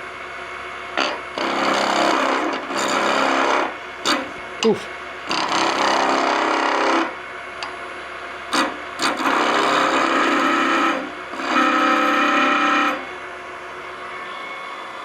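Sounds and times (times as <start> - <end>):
lathe humming tone: 0.0 - 15.0
chisel cutting wood on a lathe: 1.0 - 7.8, 8.4 - 13.2.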